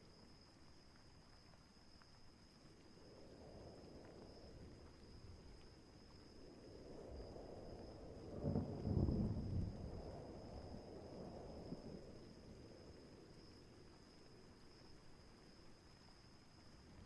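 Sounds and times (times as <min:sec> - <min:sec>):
low wind rumble: 0:02.9 - 0:14.8.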